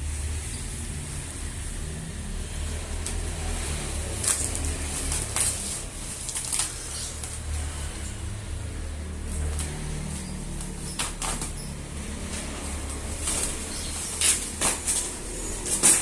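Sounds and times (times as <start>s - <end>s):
packaging crinkling: 4.1s - 7.6s.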